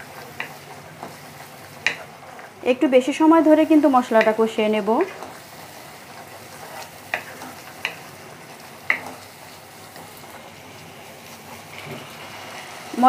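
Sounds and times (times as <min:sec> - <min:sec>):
spice paste sizzling in oil: 0:00.0 - 0:13.0
spatula knocking on pan: 0:01.8 - 0:02.1, 0:04.1 - 0:04.4, 0:07.1 - 0:08.1, 0:08.8 - 0:09.2.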